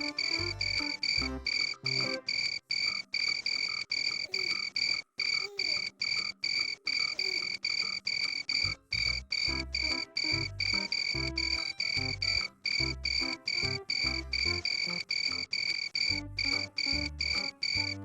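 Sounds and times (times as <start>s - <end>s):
low musical notes: 0.0s - 2.4s, 9.5s - 15.5s, 16.1s - 18.0s.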